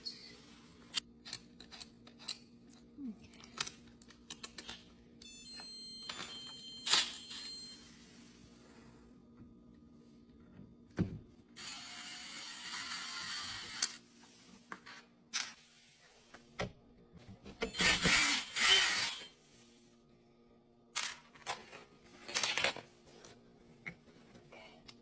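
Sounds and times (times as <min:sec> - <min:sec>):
plastic and metal parts clattering: 0:21.0 - 0:22.9.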